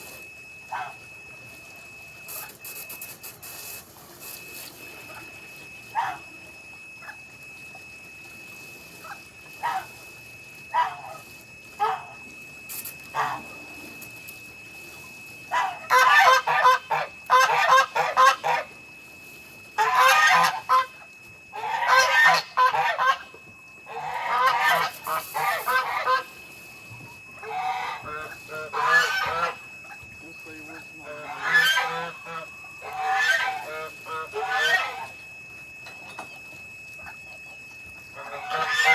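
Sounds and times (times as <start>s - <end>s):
geese honking: 10.8s - 12.2s, 13.1s - 13.7s, 15.5s - 18.8s, 19.8s - 26.4s, 27.3s - 35.2s, 37.0s - 38.9s.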